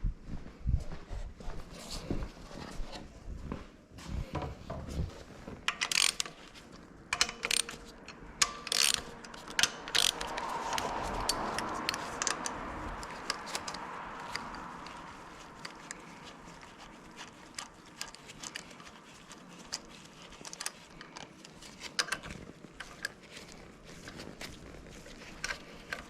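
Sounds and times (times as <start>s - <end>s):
metal parts clinking: 5.6s - 16.6s, 17.2s - 23.2s
socket ratchet clicking: 5.6s - 16.6s, 17.2s - 24.3s.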